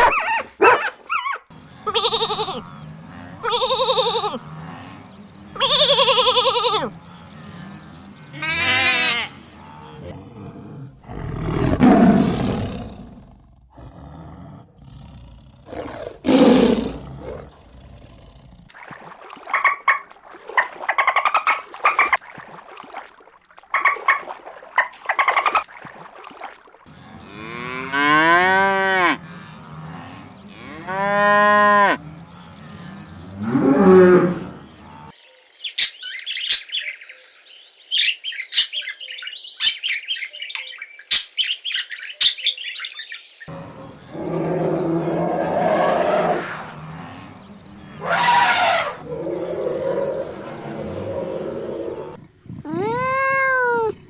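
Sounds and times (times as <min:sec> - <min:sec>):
cows mooing: 0:01.6 - 0:10.2, 0:26.9 - 0:35.2, 0:43.5 - 0:54.0.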